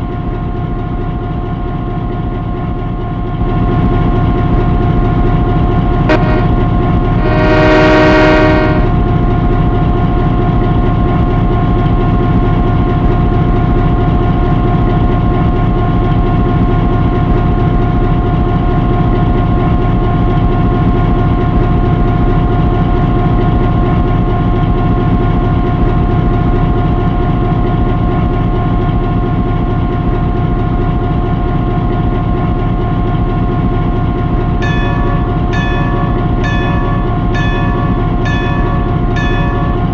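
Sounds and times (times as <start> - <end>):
locomotive engine droning: 0.0 - 39.9
locomotive horn blast: 6.1 - 9.2.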